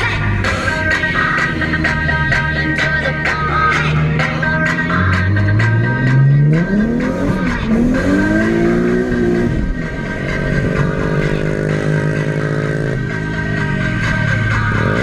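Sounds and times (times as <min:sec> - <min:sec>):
car engine revving hard: 0:03.7 - 0:15.0.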